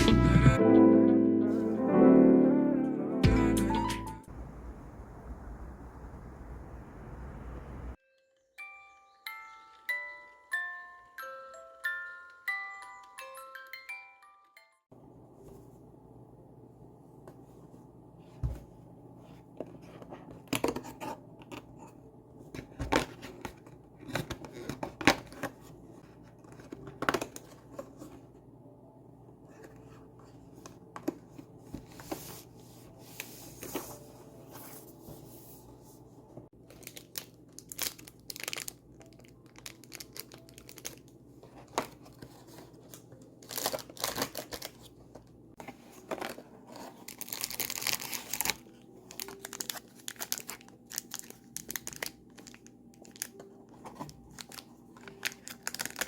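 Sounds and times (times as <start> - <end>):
paper crinkling and tearing: 36.7 - 45.0, 45.6 - 56.0.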